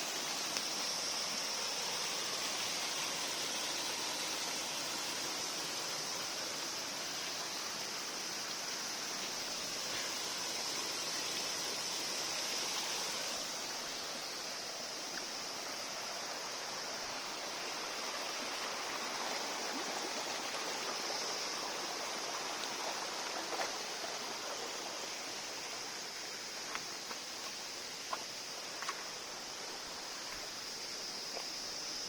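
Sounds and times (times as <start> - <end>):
rushing like running water: 0.0 - 32.0
steady high hiss: 0.0 - 32.0.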